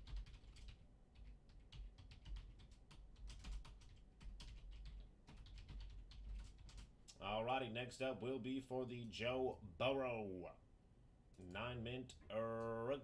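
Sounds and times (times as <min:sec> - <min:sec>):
computer keyboard typing: 0:00.0 - 0:06.9.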